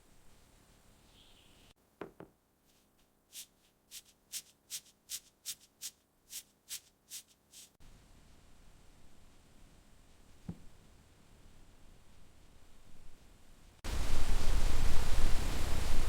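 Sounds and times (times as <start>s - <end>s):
hissing scraping strokes: 2.8s - 7.8s.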